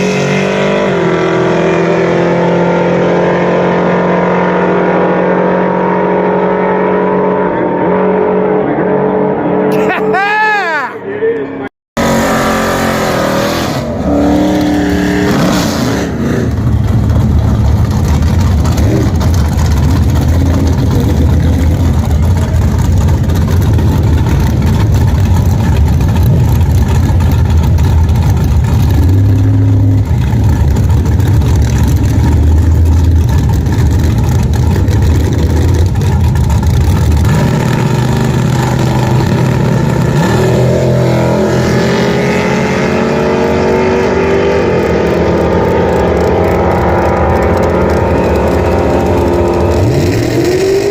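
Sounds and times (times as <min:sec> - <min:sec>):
car engine running hard: 0:11.1 - 0:50.9.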